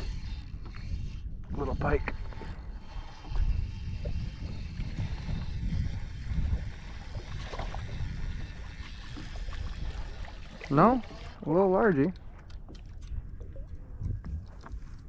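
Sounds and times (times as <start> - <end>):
water sloshing against a hull: 0.0 - 15.0
low rumble: 12.1 - 15.0.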